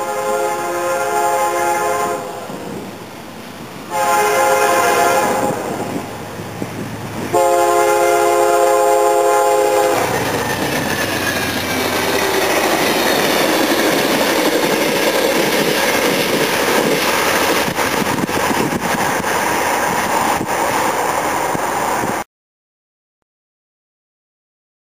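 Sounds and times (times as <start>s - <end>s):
train air horn: 0.0s - 2.8s, 3.9s - 6.1s, 7.3s - 10.2s
train rushing past: 0.0s - 22.2s
wheels clicking over rail joints: 9.6s - 22.2s.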